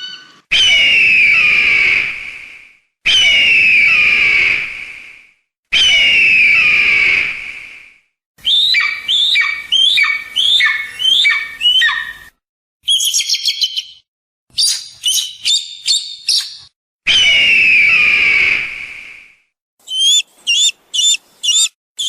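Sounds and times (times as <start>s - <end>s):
high chattering: 19.9s - 21.7s
raptor cries sliding downward: 19.9s - 21.8s.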